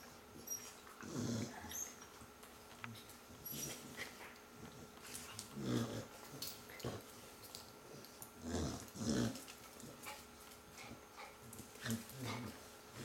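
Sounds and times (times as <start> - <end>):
dog growling: 1.0 - 1.8, 5.4 - 7.1, 8.4 - 10.1, 11.8 - 12.6.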